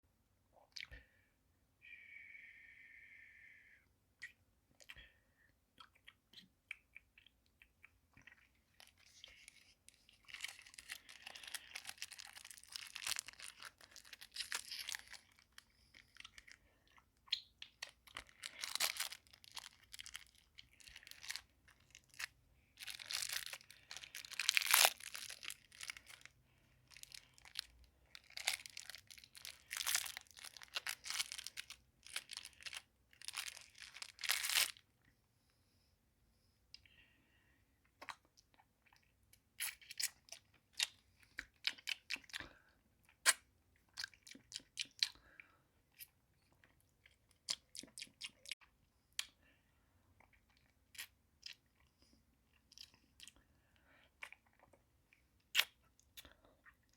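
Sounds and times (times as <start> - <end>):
lollipop crackling and crunching: 5.8 - 34.9, 38.0 - 45.2, 55.4 - 56.2.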